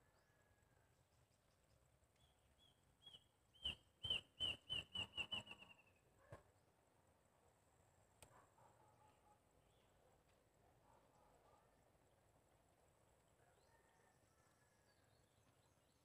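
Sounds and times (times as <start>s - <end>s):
bird chirping: 1.2s - 6.1s.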